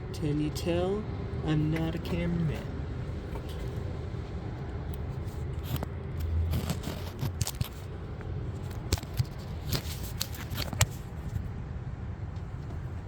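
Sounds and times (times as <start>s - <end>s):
steady low rumble: 0.0s - 13.0s
clicks and scrapes of hand work: 5.6s - 7.9s, 8.6s - 11.2s.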